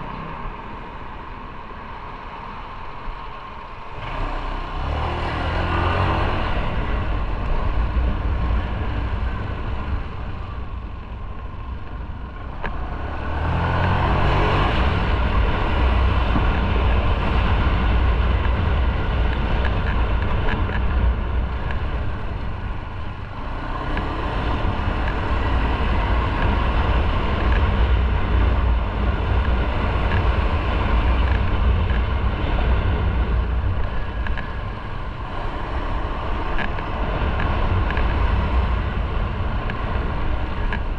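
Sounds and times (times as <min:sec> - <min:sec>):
road noise: 0:00.0 - 0:40.9
wind: 0:00.0 - 0:40.9.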